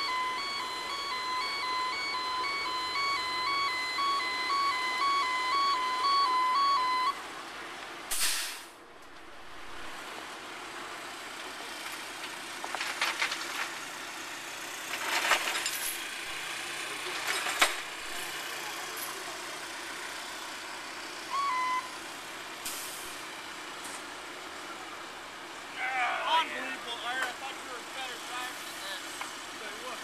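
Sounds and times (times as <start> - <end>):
short beep: 0.0 - 7.2, 21.3 - 22.0
heavy truck engine rumbling: 0.0 - 30.0.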